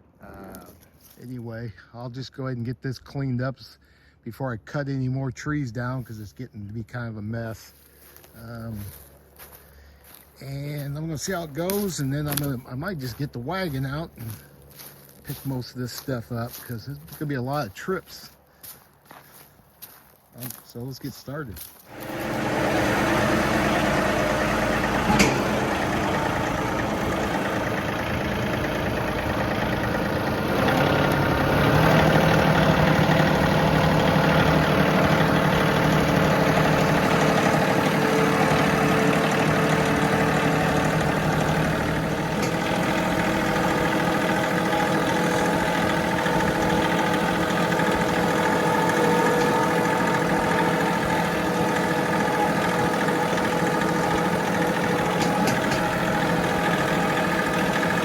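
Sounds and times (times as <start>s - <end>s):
tractor diesel engine running: 3.8s - 58.0s.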